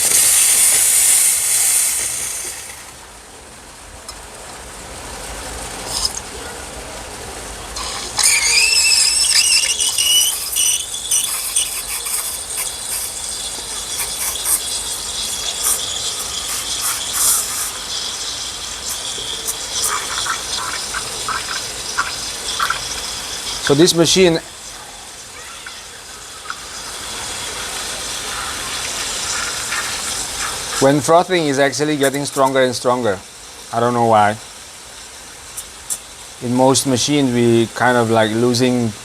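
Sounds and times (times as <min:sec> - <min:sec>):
steam wand frothing milk: 0:00.0 - 0:03.0, 0:07.7 - 0:39.0
spluttering crackles: 0:07.7 - 0:33.6
high squeal rising in pitch: 0:07.8 - 0:11.8.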